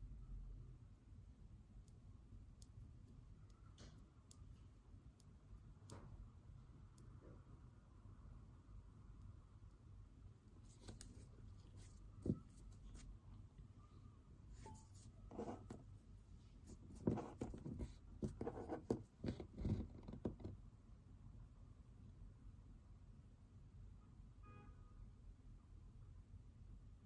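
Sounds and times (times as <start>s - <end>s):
pen scratching on paper: 14.6s - 15.9s, 16.7s - 20.4s.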